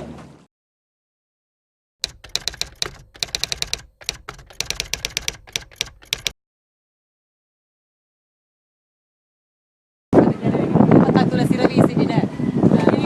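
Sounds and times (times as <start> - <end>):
typewriter keys clacking: 2.0 - 6.4.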